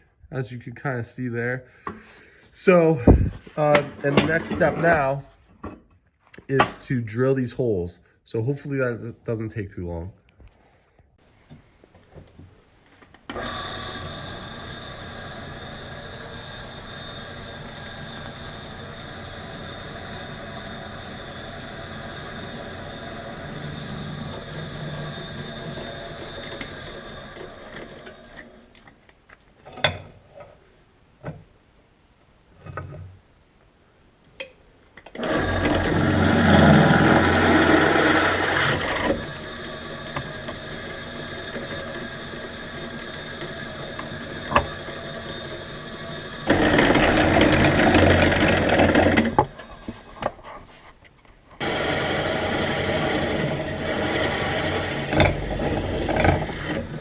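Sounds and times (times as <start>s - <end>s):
electric drill boring steel: 13.3s - 28.9s, 35.0s - 50.3s, 51.6s - 57.0s.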